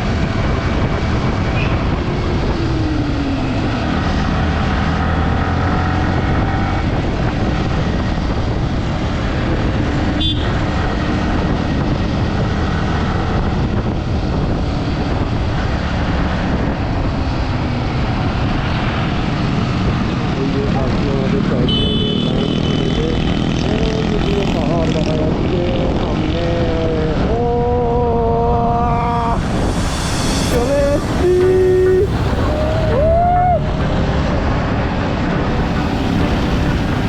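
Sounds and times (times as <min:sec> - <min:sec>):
road and wind noise: 0:00.0 - 0:37.0
motorcycle engine running: 0:33.6 - 0:37.0.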